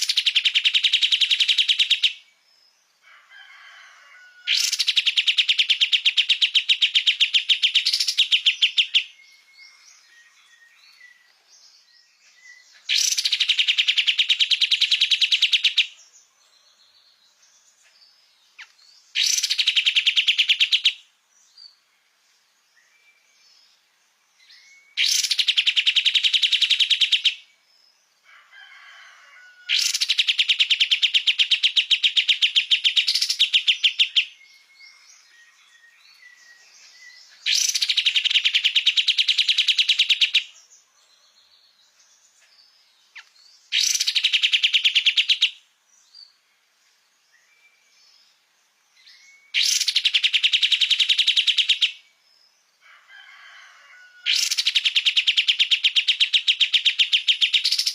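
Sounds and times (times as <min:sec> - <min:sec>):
songbird rattling trill: 0:29.8 - 0:34.4, 0:49.5 - 0:52.0, 0:54.4 - 0:57.9.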